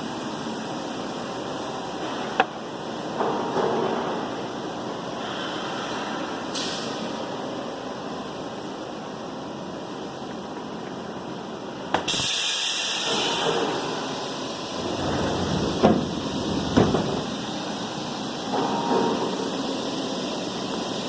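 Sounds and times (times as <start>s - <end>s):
strong hiss: 12.1s - 18.6s
sharp knocks: 15.6s - 17.4s.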